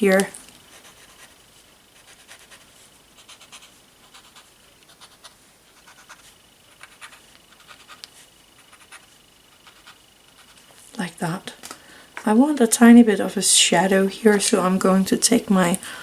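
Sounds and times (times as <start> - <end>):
paper stump scratching on paper: 0.7 - 1.4, 2.0 - 10.7.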